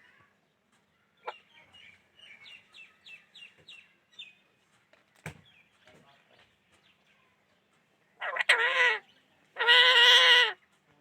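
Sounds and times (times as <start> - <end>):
parrot squawking and chirping: 8.2 - 9.0, 9.6 - 10.6.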